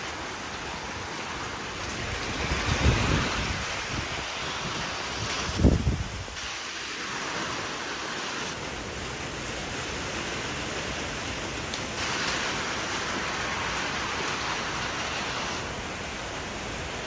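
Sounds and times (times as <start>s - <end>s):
storm wind and rain rushing: 0.0s - 17.0s
wind gust buffeting microphone: 1.1s - 6.5s.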